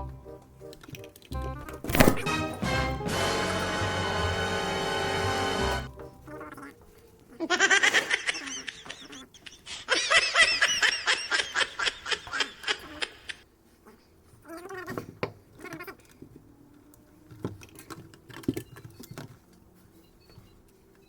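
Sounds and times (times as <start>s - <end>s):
high-pitched laughter: 7.3s - 13.4s.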